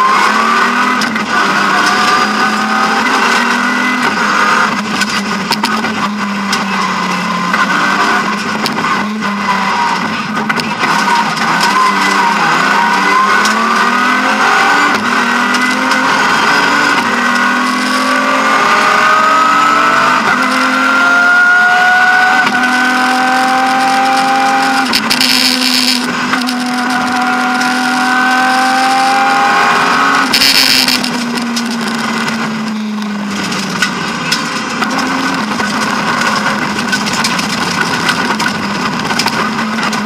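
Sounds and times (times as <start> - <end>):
car engine at full throttle: 0.0 - 40.0.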